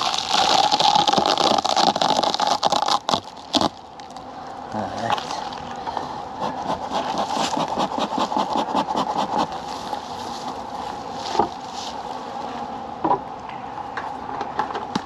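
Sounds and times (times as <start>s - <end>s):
honeybees buzzing: 0.0s - 15.0s
hive tool scraping wooden frames: 5.1s - 12.8s.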